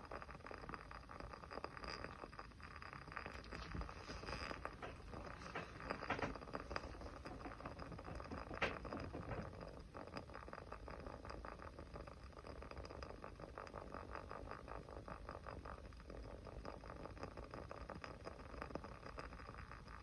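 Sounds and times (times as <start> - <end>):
small fire crackling: 0.0 - 20.0.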